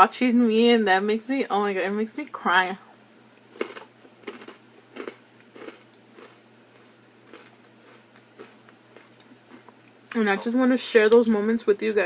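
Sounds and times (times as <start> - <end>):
person chewing food: 3.6 - 10.1.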